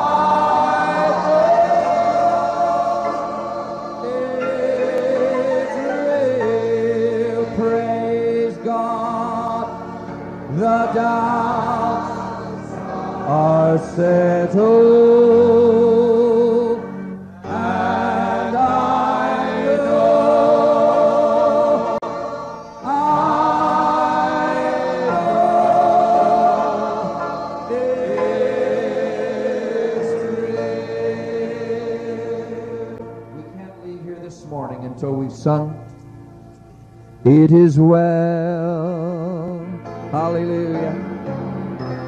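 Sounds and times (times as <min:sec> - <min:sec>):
congregation singing a hymn: 0:00.0 - 0:35.8, 0:37.3 - 0:42.0.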